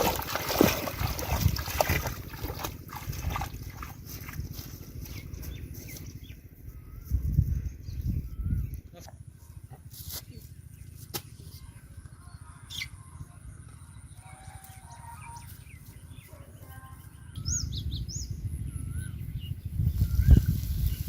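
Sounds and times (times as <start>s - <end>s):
small birds chirping: 4.1s - 21.0s.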